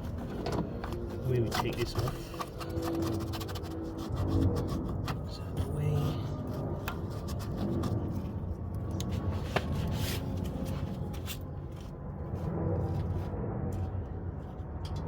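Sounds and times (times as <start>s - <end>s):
steady low hum: 0.0s - 15.0s
rubbing scrapes on plastic: 1.0s - 5.5s, 6.5s - 8.5s.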